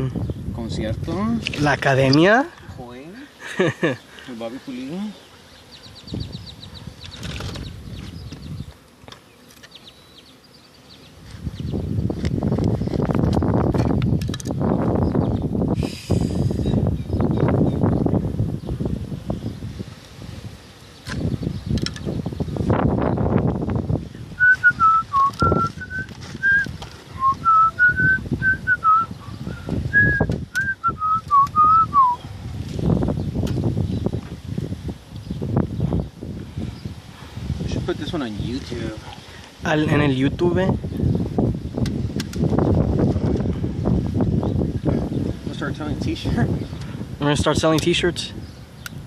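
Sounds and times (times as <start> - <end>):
honey bees buzzing: 1.4 - 40.2
person whistling a tune: 24.4 - 29.1, 29.9 - 32.2.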